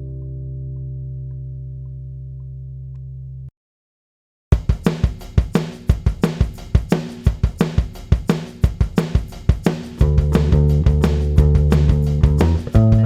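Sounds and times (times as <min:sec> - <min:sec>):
drum-kit beat: 0:04.5 - 0:13.0.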